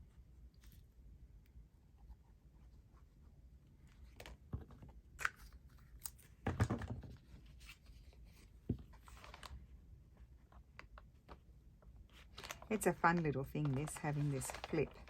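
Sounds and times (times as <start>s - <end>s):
paper rustling and crinkling: 7.0s - 15.0s.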